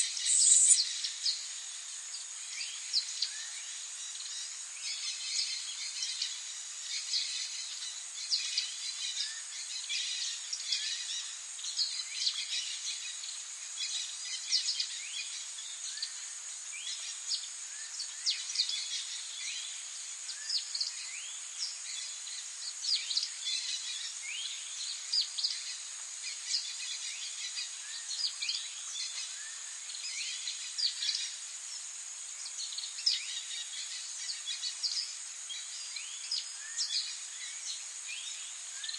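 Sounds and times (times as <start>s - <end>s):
songbirds chirping and singing: 0.0s - 16.2s
steady high-pitched hiss: 0.0s - 38.9s.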